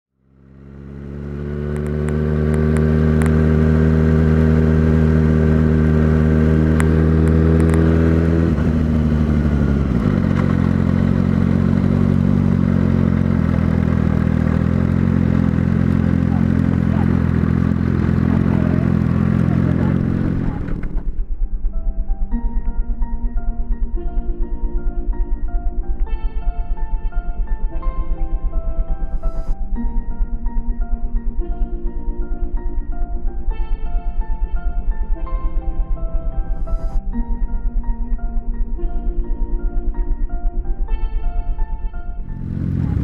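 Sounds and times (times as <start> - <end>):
motorcycle engine idling: 0.2 - 43.0
microphone plug crackles: 6.8 - 8.0.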